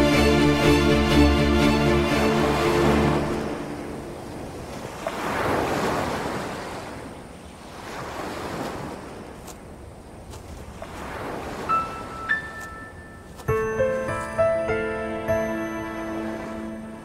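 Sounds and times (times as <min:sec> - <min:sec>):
waves breaking on beach: 0:02.3 - 0:17.0.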